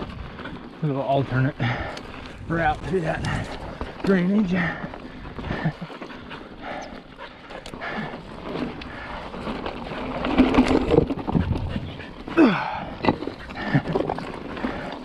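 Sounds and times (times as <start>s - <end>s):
bike tyres rumbling on rock: 0.0s - 15.0s
rider breathing hard: 1.5s - 15.0s
bike frame knocking and rattling: 7.8s - 15.0s.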